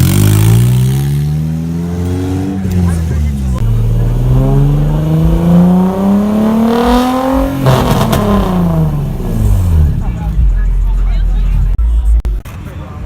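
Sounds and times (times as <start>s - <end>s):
engine revving hard: 0.0s - 10.1s.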